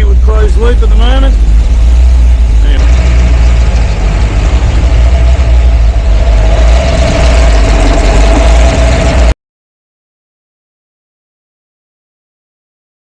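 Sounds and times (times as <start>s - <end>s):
car engine idling: 0.0s - 9.4s
supercharger whine: 0.0s - 9.4s.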